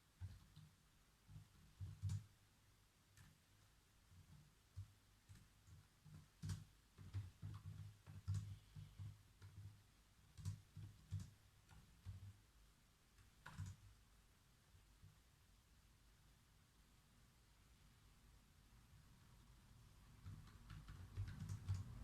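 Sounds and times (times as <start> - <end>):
typing on computer keyboard: 0.2 - 2.3, 3.2 - 3.4, 4.1 - 12.4, 13.2 - 13.9, 20.1 - 22.0.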